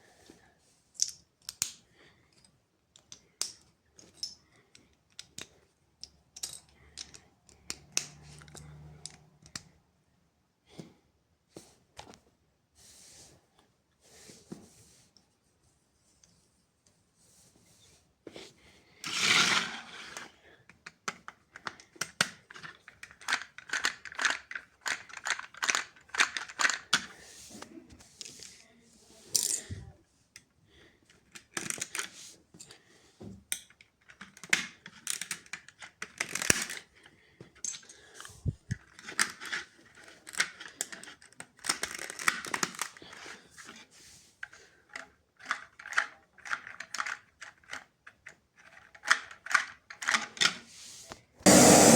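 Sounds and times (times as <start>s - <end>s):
plastic pieces clicking and rustling: 1.0s - 9.6s, 19.1s - 27.1s, 31.1s - 32.7s, 33.5s - 43.8s, 44.4s - 50.6s.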